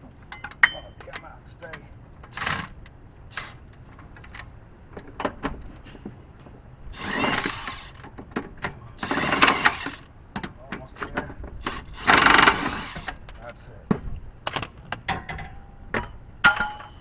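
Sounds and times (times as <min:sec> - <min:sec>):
ratchet ratcheting: 0:03.3 - 0:03.6, 0:07.0 - 0:08.0, 0:09.0 - 0:10.0, 0:11.6 - 0:13.2
wrench metal clicks and knocks: 0:11.1 - 0:13.2.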